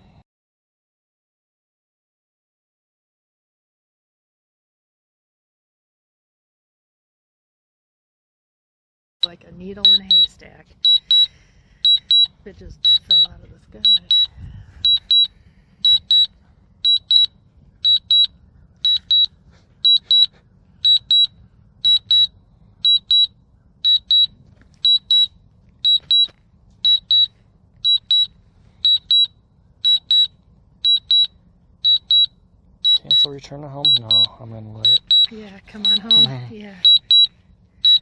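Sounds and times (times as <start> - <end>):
short high beeps in pairs: 9.2 - 38.0.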